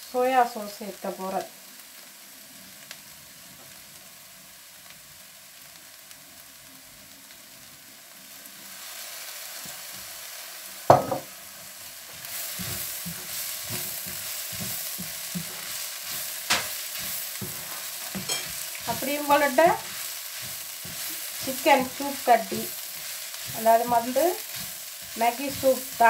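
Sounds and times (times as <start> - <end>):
food sizzling in a pan: 0.0 - 26.0
sharp knock: 10.9 - 11.3
wooden spatula stirring and scraping: 12.0 - 26.0.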